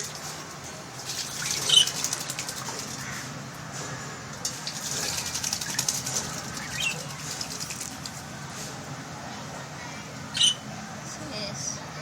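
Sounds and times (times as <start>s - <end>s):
bird splashing in water: 1.0s - 3.3s, 4.4s - 8.3s
bird chirps: 10.3s - 10.6s.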